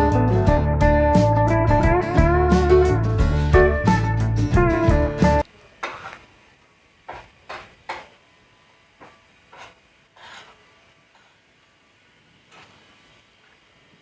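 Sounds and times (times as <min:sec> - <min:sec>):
guitar music: 0:00.0 - 0:05.4.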